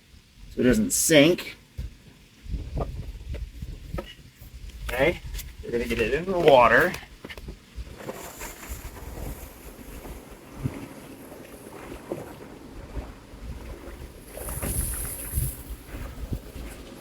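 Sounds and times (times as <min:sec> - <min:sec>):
water sounds: 0:00.0 - 0:17.0
wind buffeting microphone: 0:01.7 - 0:17.0
hissing rush: 0:14.2 - 0:15.9.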